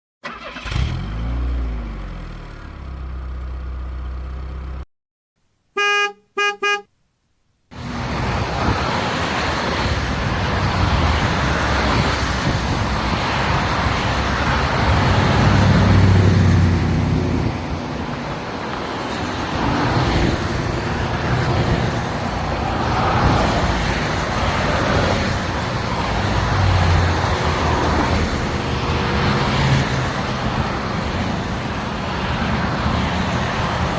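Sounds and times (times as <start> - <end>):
car engine and road noise: 0.2 - 33.9
car horn toots: 5.8 - 6.9.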